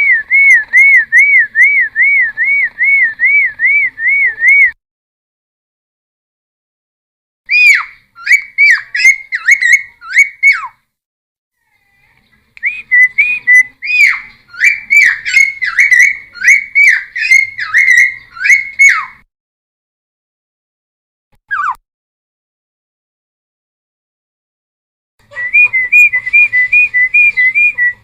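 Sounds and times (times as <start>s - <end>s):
bird singing whistled notes: 0.0s - 4.8s, 7.5s - 10.6s, 12.6s - 19.2s, 25.3s - 28.0s.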